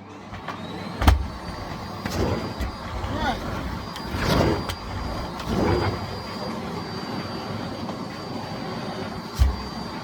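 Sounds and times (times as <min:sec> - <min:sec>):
vacuum cleaner running: 0:00.0 - 0:10.0.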